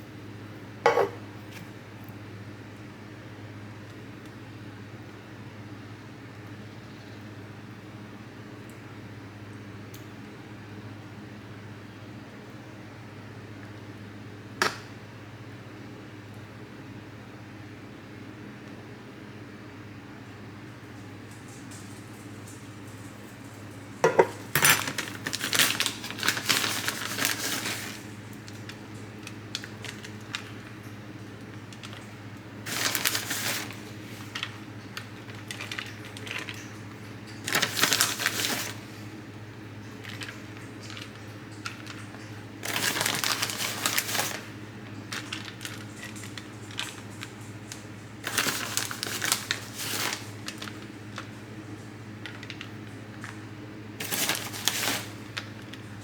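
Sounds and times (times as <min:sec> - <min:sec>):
rustling and clinking handling noise: 0:21.3 - 0:28.0, 0:54.0 - 0:55.7.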